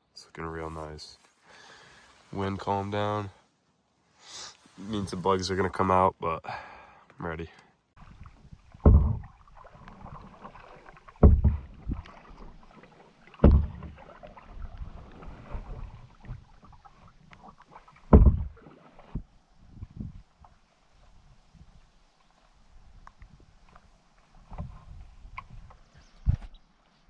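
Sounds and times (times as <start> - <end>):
paddle strokes splashing water: 8.0 - 26.0
low knocks on canoe: 8.6 - 16.6, 18.0 - 19.2.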